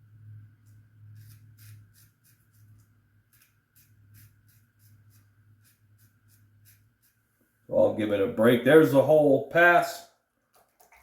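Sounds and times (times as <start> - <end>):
steady low hum: 0.0 - 8.4
razor scraping stubble: 0.6 - 7.2.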